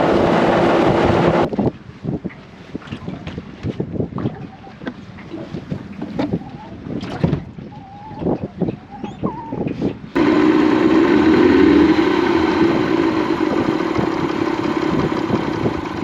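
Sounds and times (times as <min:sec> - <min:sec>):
outboard motor idling: 0:00.0 - 0:01.5, 0:10.2 - 0:16.0.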